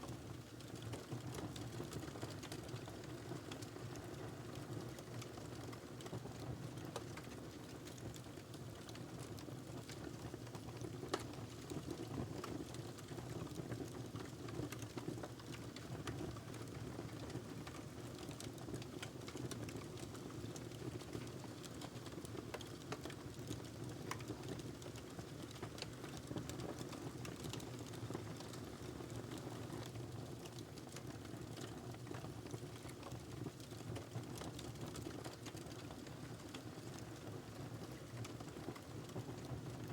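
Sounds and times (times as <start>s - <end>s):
wood fire crackling: 21.6s - 29.9s.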